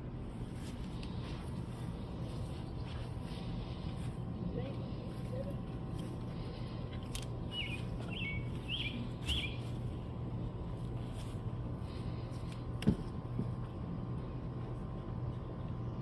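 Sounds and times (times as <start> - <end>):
low background hum: 0.0 - 16.0
small bird chirping: 7.5 - 9.7.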